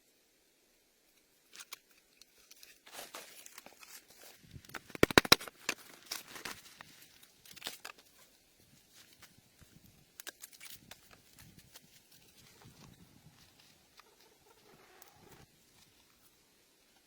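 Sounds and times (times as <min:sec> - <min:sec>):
dry twigs crackling and snapping: 0:01.5 - 0:08.2, 0:10.1 - 0:12.4.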